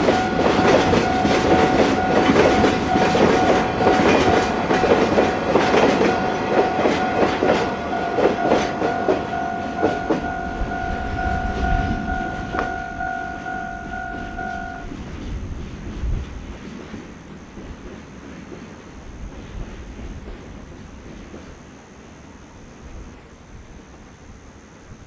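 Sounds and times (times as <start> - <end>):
level crossing bell ringing: 0.0 - 14.9
train wheels clicking over rail joints: 0.0 - 21.6.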